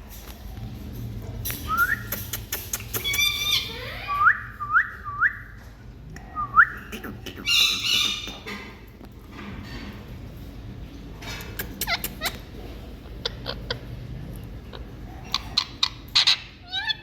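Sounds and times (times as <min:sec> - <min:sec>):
parrot squawking: 0:02.2 - 0:04.5, 0:06.6 - 0:08.6, 0:11.6 - 0:13.9, 0:14.7 - 0:17.0.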